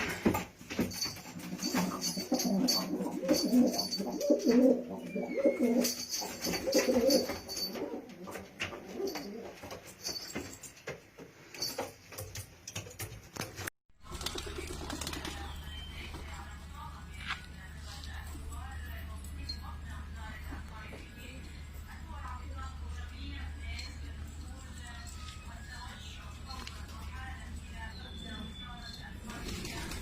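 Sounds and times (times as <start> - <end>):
pigeons cooing: 2.0 - 9.4.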